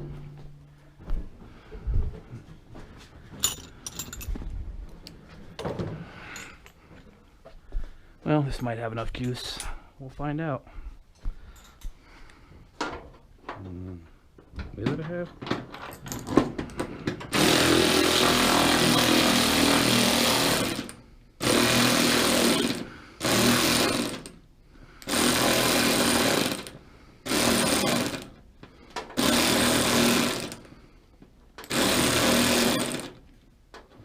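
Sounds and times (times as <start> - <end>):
impact wrench hammering: 25.0 - 28.4, 31.6 - 33.2.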